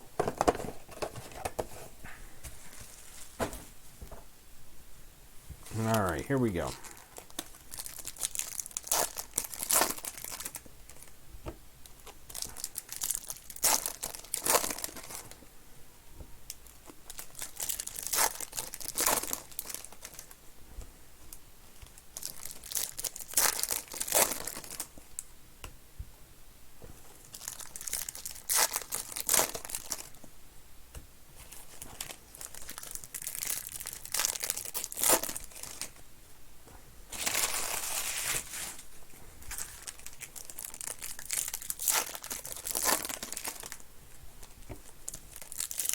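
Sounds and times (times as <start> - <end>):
foil wrappers tearing and crinkling: 6.6 - 11.1, 12.0 - 15.3, 17.1 - 20.4, 21.9 - 24.9, 27.3 - 30.2, 31.5 - 35.9, 37.1 - 38.8, 39.5 - 43.8, 45.1 - 45.9.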